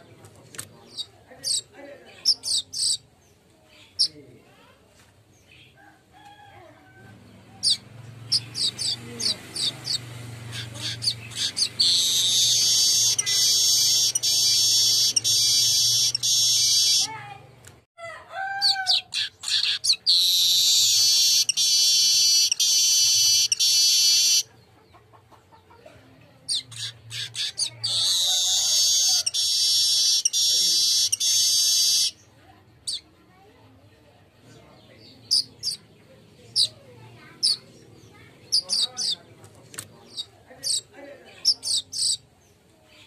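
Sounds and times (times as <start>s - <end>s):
bird chirps: 0.8s - 4.2s, 7.2s - 17.2s, 19.0s - 25.0s, 26.5s - 33.1s, 34.8s - 39.3s, 40.0s - 42.6s
weaver bird buzzy song: 7.6s - 17.1s, 19.2s - 24.5s, 26.5s - 32.3s.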